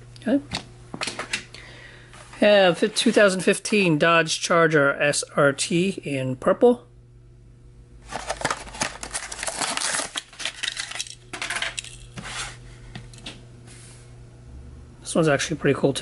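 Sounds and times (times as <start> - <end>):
plastic blister packaging crackling: 8.0 - 12.1.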